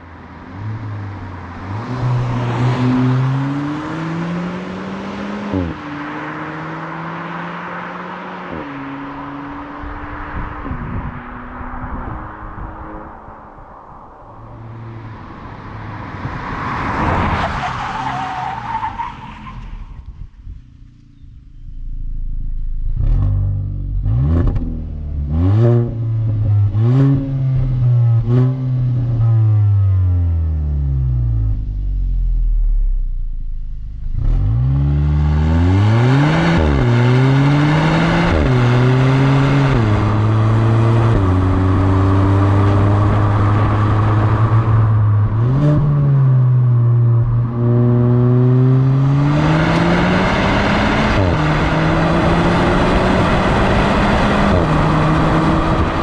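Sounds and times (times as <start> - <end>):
car engine accelerating: 0.0 - 56.0
rushing noise: 9.6 - 20.1.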